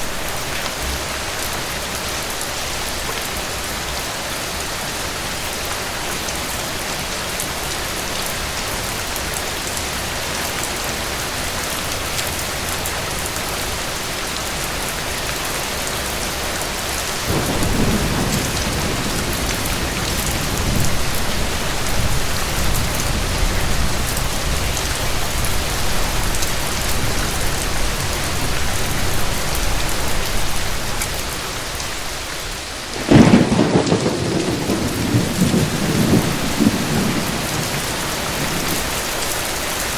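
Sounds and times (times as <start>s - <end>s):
steady rain falling: 0.0s - 39.9s
loud thunderclap: 17.3s - 24.7s, 32.9s - 39.0s
low thunder rumble: 17.3s - 30.9s, 32.9s - 39.1s.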